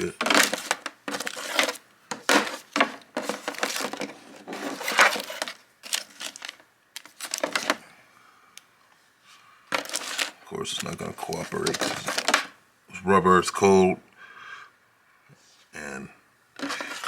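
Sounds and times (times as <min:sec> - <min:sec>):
plastic packaging crinkling: 0:00.0 - 0:07.8, 0:09.7 - 0:12.6, 0:16.6 - 0:17.0.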